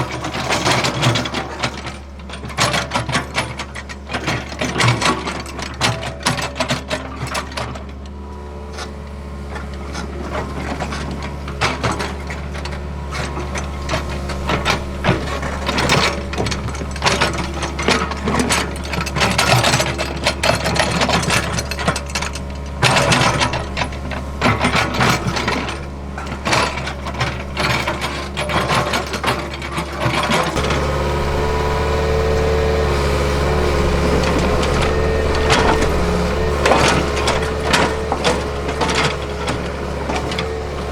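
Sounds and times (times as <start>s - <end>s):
excavator diesel engine running: 0.0s - 40.9s
hydraulics: 0.0s - 40.9s
bucket scraping and knocking soil: 30.0s - 40.9s.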